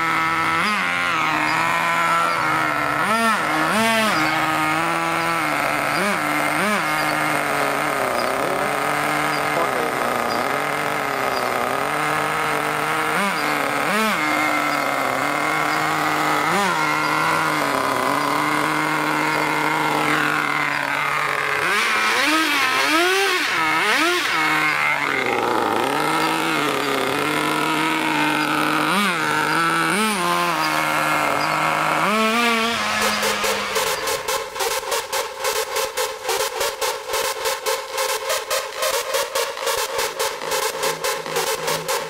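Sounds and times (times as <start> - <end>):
toy truck motor revving: 0.0 - 42.0.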